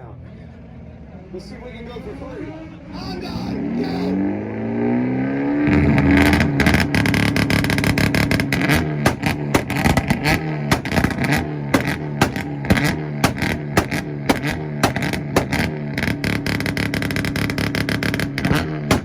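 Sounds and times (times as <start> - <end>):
car engine revving on limiter: 3.4 - 19.0
exhaust cracking and popping: 5.8 - 19.0.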